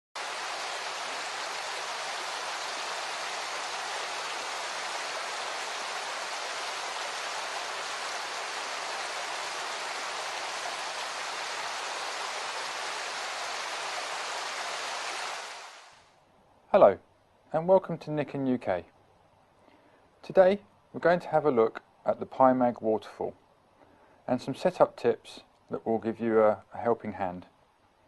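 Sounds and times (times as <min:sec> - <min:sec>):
rushing water: 0:00.2 - 0:16.1.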